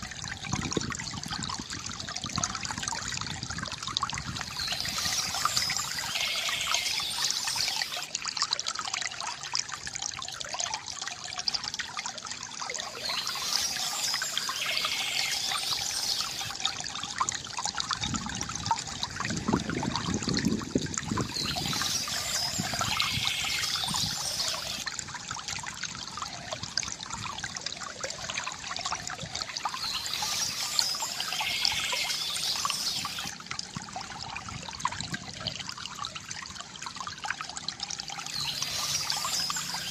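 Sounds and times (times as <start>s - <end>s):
water trickling from fountain: 0.0s - 39.9s
birds chirping: 4.4s - 8.1s, 12.8s - 16.5s, 21.3s - 24.8s, 29.6s - 33.3s, 38.3s - 39.9s.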